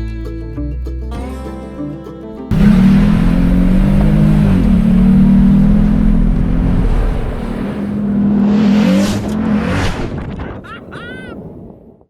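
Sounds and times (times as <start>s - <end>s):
vehicle engine revving: 2.5s - 10.3s
rush of noise: 2.5s - 10.4s.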